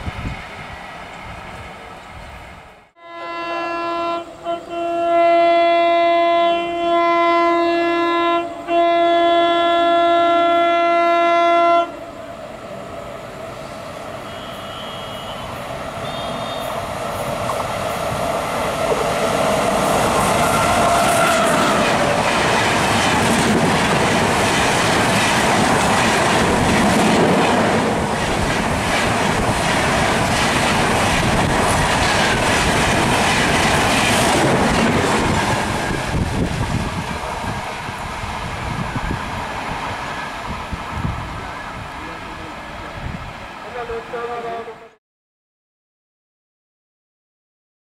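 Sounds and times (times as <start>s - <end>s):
passenger train passing at speed: 0.0s - 45.0s
locomotive horn: 3.0s - 12.0s, 14.2s - 16.8s, 20.3s - 22.2s, 43.8s - 45.0s
wheels clickety-clack: 21.1s - 36.0s.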